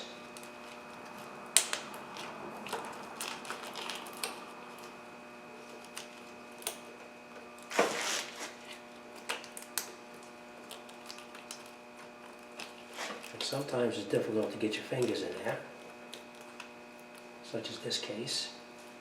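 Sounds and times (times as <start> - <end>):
rustling scrape: 7.7 - 8.8, 12.8 - 13.3.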